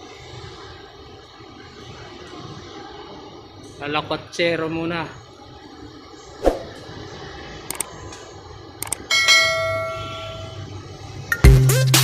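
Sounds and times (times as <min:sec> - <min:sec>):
light clicks: 0:07.7 - 0:08.2, 0:08.8 - 0:09.0
bell ringing: 0:09.1 - 0:10.7.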